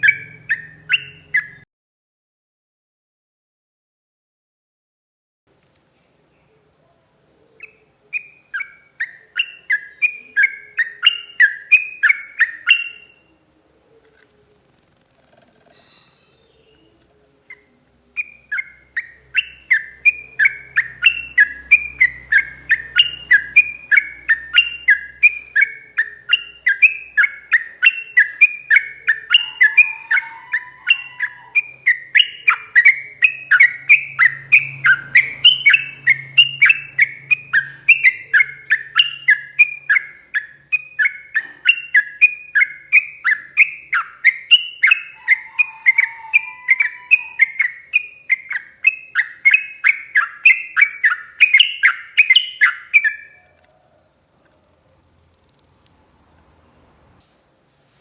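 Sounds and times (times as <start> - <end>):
bird singing quick chirps: 0.0 - 1.6, 18.2 - 45.4, 46.0 - 53.4.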